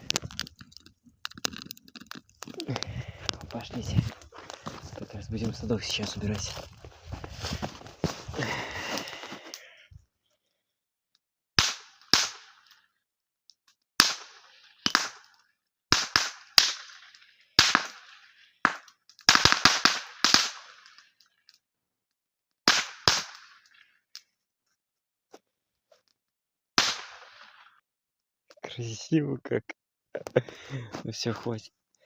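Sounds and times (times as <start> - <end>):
cartridges banging in fire: 11.6 - 12.8, 14.0 - 21.1, 22.7 - 23.8, 26.8 - 27.8.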